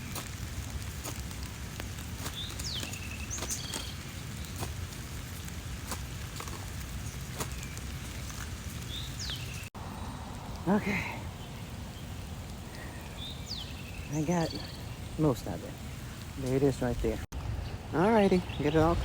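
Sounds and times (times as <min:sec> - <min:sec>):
sharp raindrop ticks: 0:00.0 - 0:17.6
rain pattering: 0:00.0 - 0:19.0
low rumble: 0:17.0 - 0:19.0.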